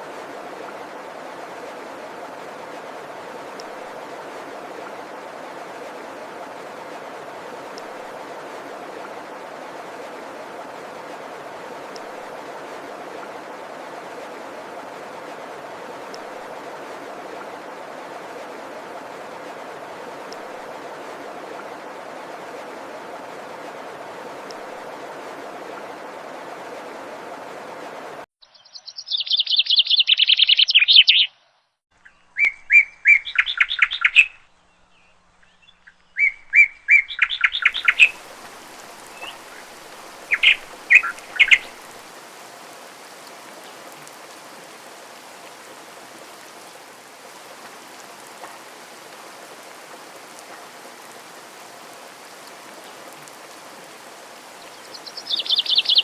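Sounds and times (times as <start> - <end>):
steady water noise: 0.0 - 28.3, 32.4 - 56.0
songbirds trilling: 28.4 - 31.3, 32.0 - 46.8, 47.4 - 56.0.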